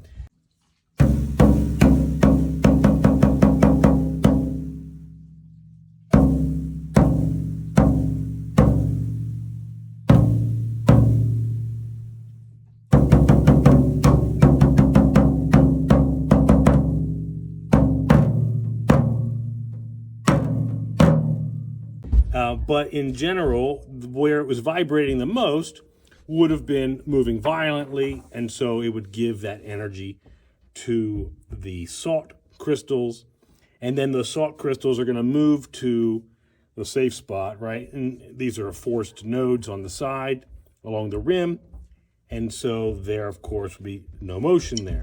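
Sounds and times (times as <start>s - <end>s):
low-pitched drum strokes: 1.0s - 23.8s.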